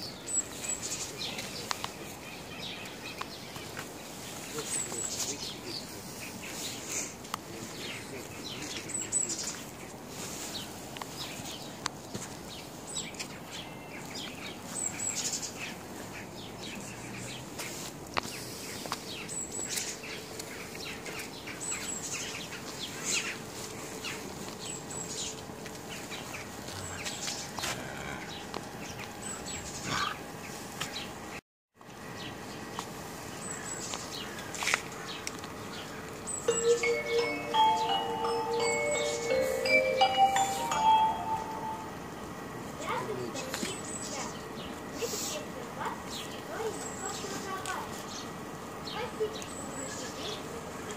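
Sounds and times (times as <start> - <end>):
small birds chirping: 0.0 - 31.3, 32.1 - 41.8, 42.9 - 50.9
outdoor background hum: 0.0 - 36.5, 40.8 - 50.9.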